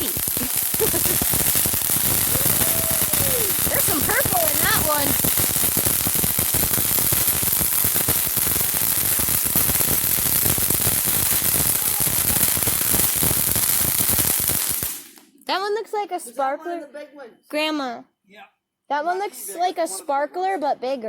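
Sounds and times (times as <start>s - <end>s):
firework fountain hissing and crackling: 0.0s - 15.3s.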